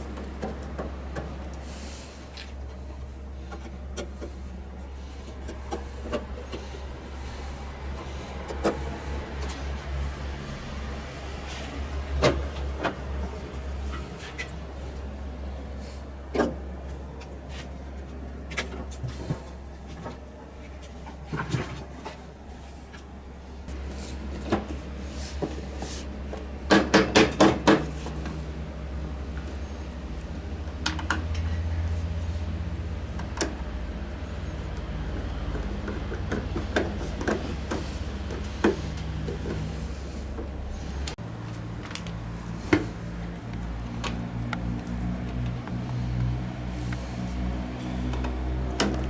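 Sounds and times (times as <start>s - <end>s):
low hum: 6.3s - 12.2s.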